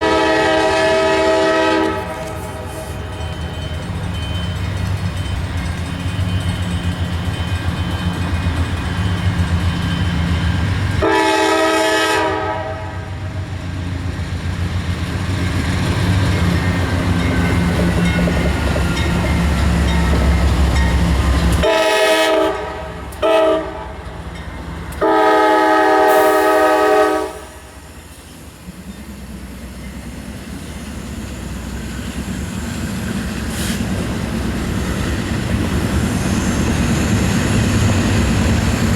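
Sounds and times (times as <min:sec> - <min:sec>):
train air horn blasts: 0:00.0 - 0:03.2, 0:11.0 - 0:13.3, 0:21.6 - 0:24.0, 0:25.0 - 0:27.8
diesel locomotive engine rumble: 0:00.0 - 0:38.9
rail cars rolling: 0:00.0 - 0:38.9.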